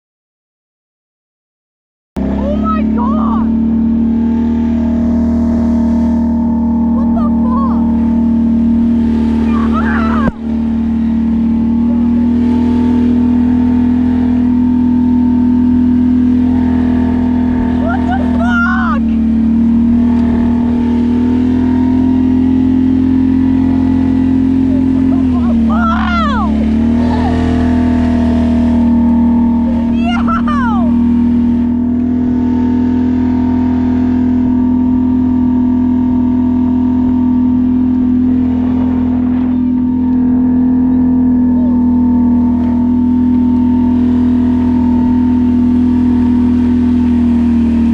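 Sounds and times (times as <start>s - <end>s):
engine running steadily: 2.2s - 47.9s.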